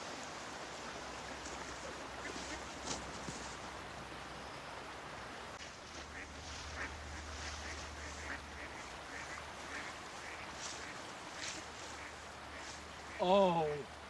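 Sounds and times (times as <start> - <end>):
steady hiss: 0.0 - 14.0
ducks quacking: 2.2 - 3.0, 5.9 - 13.3.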